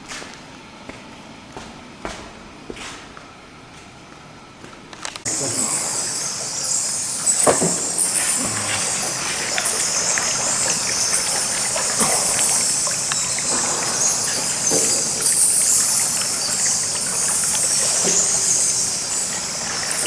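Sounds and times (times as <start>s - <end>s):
water running: 5.3s - 20.0s.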